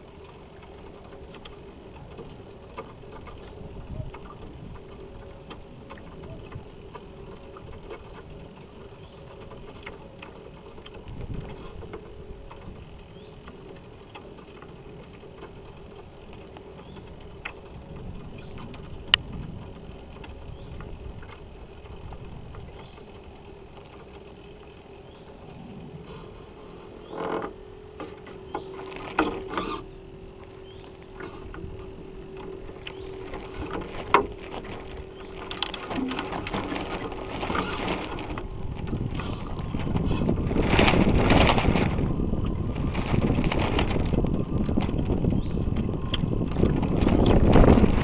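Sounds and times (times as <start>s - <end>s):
steady low hum: 0.0s - 48.0s
water washing against hull: 0.0s - 48.0s
small scattered ticks: 0.1s - 48.0s.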